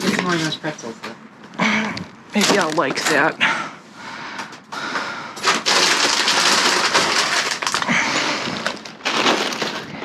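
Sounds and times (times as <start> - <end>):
plastic packaging crinkling: 2.4 - 3.3, 5.4 - 10.0.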